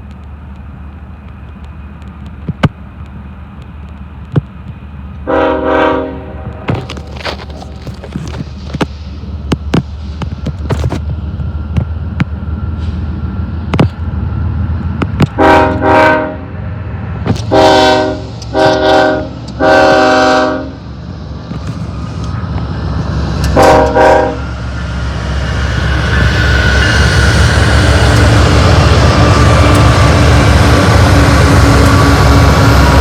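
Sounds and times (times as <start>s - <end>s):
freight train rumble: 0.0s - 33.0s
locomotive air horn blasts: 5.2s - 6.7s, 15.3s - 16.6s, 17.3s - 20.8s, 23.5s - 24.5s.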